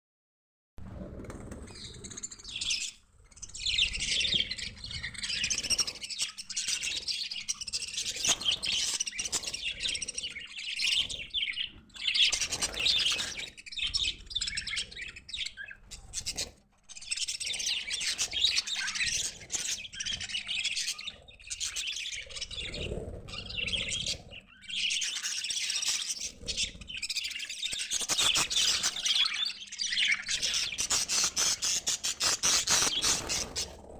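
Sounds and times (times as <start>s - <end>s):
budgerigars chattering and chirping: 1.8s - 33.9s.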